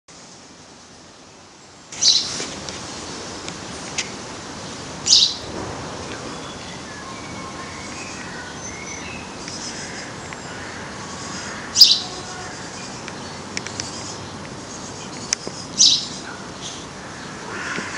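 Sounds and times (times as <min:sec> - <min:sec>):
background noise: 0:00.1 - 0:17.9
birds chirping: 0:01.4 - 0:17.9.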